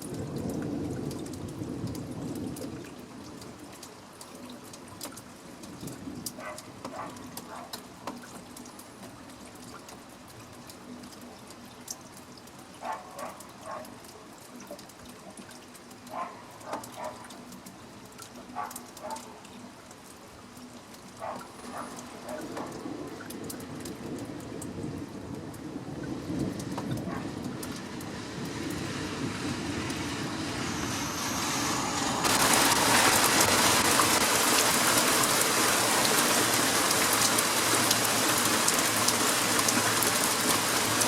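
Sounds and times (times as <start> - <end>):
close drips and splashes: 0.0 - 31.5, 32.2 - 41.0
steady rain falling: 0.0 - 41.0
thunder rumbling: 22.6 - 37.4.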